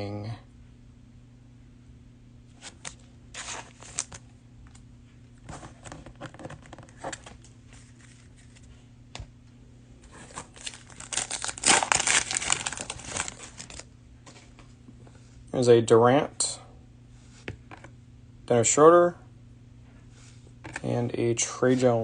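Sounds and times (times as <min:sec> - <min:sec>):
cellophane wrapper crinkling: 0:02.6 - 0:04.2, 0:10.2 - 0:13.9.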